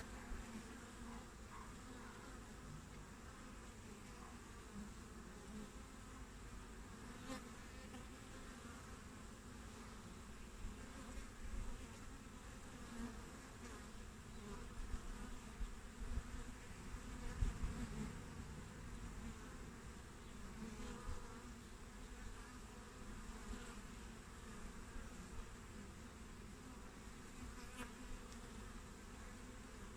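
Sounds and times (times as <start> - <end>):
bees buzzing: 11.8 - 29.9.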